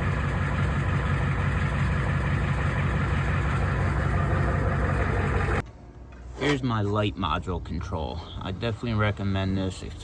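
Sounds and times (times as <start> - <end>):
truck engine idling: 0.0 - 5.7.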